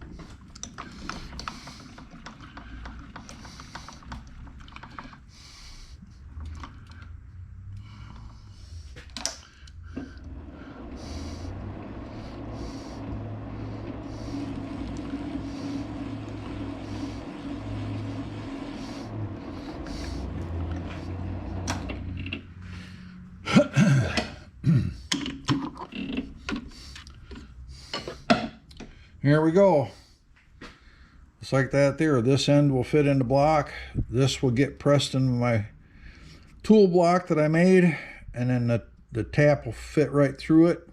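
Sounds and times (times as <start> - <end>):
metal lathe humming: 9.7 - 24.4.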